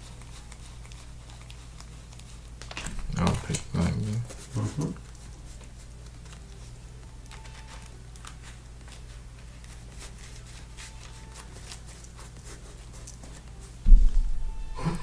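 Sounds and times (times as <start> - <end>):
playing cards ticking: 0.0 - 13.5
low electrical hum: 0.0 - 15.0
heavy low thump: 13.9 - 15.0.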